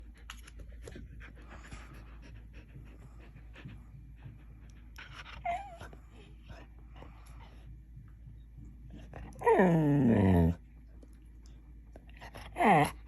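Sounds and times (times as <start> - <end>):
dog panting: 0.0 - 10.6
dog whining: 5.2 - 6.3, 9.3 - 10.6, 12.3 - 13.0.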